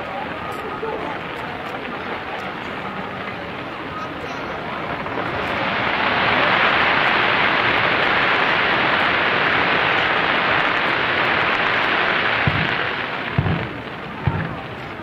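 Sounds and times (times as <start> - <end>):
fireworks crackling: 0.0 - 15.0
deep firework boom: 12.3 - 15.0.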